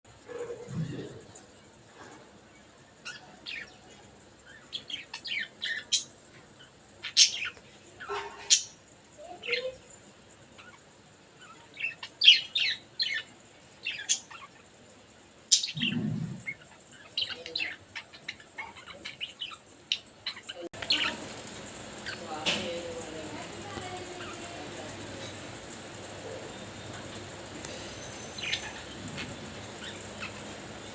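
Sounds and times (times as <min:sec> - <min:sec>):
budgerigars chirping: 0:20.8 - 0:30.9.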